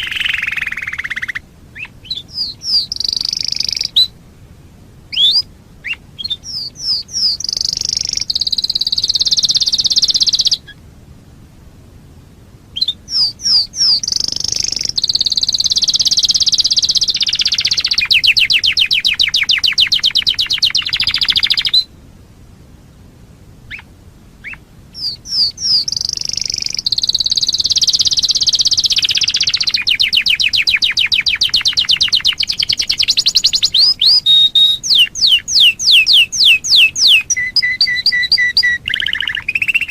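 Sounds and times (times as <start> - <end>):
canary singing trills: 0.0 - 4.2, 5.1 - 10.8, 12.7 - 22.0, 23.7 - 39.9.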